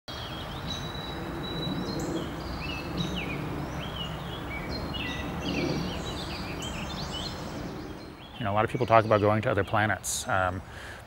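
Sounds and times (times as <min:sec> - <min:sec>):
songbirds chirping and singing: 0:00.1 - 0:10.9
low background rumble: 0:00.6 - 0:08.4.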